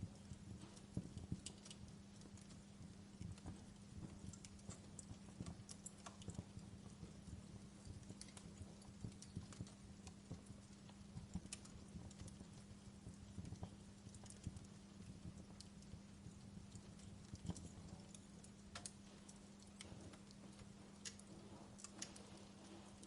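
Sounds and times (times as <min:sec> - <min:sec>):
fire crackling and popping: 0:00.0 - 0:23.0
low steady hum: 0:00.0 - 0:23.0.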